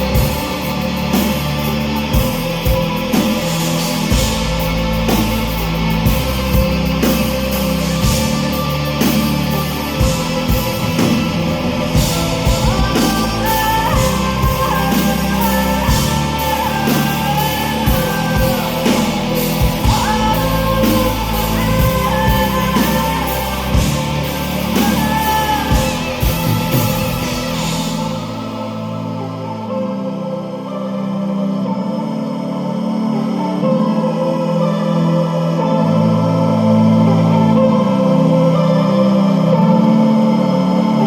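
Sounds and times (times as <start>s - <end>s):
rock band playing: 0.0s - 29.2s
woman singing: 0.0s - 41.0s.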